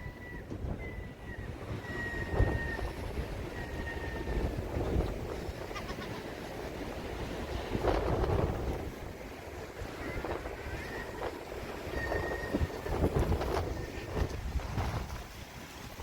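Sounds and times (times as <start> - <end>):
faint thin whistle: 0.0 - 4.5, 10.0 - 14.2
sea surf: 0.0 - 16.0
wind buffeting microphone: 0.0 - 16.0.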